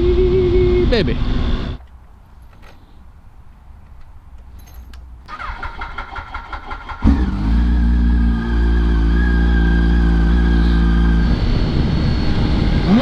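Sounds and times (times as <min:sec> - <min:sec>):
motorcycle starter cranking: 0:04.5 - 0:07.4.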